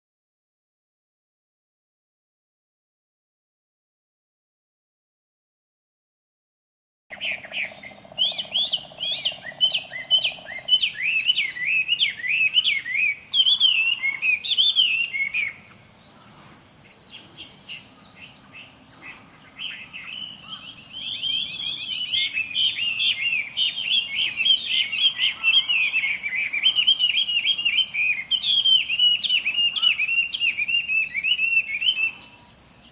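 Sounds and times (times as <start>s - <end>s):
bird singing whistled song: 7.1s - 32.9s.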